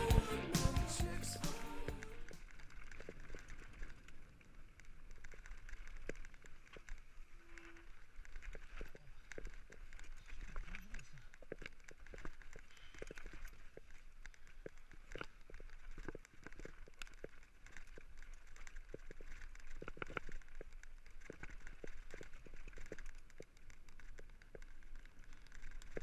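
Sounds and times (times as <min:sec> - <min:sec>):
steady low hum: 0:00.0 - 0:02.4
faint irregular clicks and knocks: 0:03.0 - 0:26.0.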